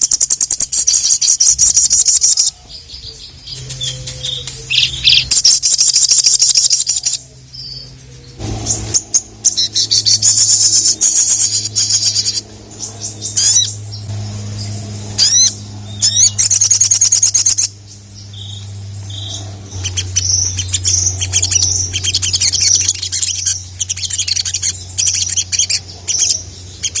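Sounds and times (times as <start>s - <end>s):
bird singing trills and chips: 0.0s - 27.0s
steady low hum: 0.0s - 27.0s.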